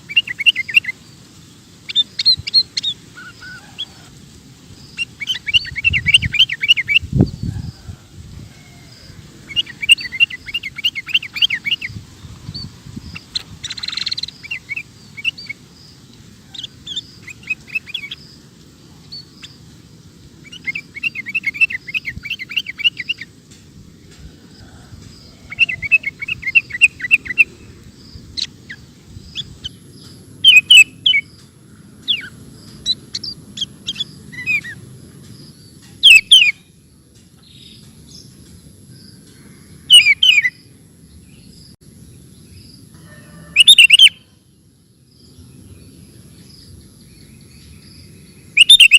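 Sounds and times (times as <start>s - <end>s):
bird chattering calls: 13.0s - 15.6s, 25.4s - 27.6s, 28.3s - 34.8s, 43.6s - 44.2s, 48.5s - 48.9s.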